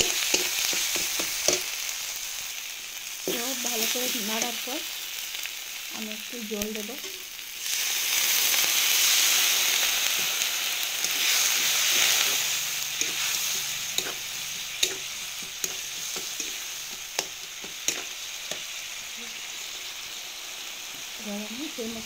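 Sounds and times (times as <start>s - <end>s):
paste sizzling in a hot pan: 0.0s - 22.0s
spatula scraping a pan: 9.8s - 18.7s.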